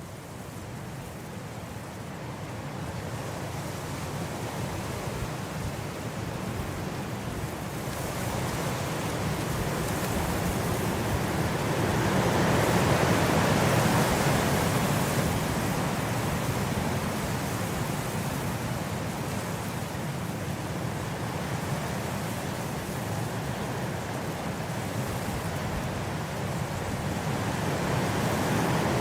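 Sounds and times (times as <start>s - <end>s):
blizzard wind blowing: 27.3s - 29.0s.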